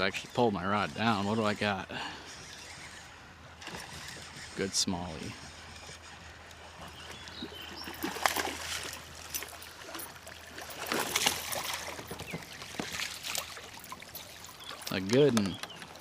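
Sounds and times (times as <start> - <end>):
water splashing and trickling: 6.8 - 16.0.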